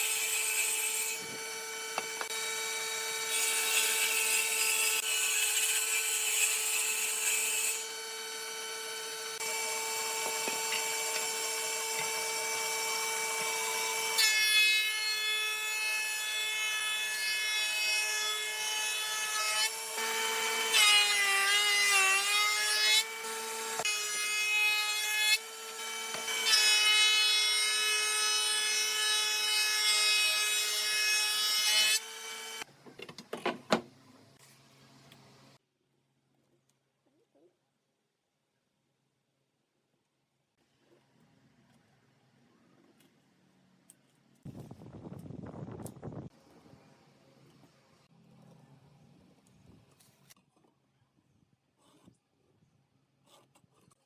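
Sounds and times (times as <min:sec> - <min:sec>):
electric saw cutting wood: 0:00.0 - 0:32.7.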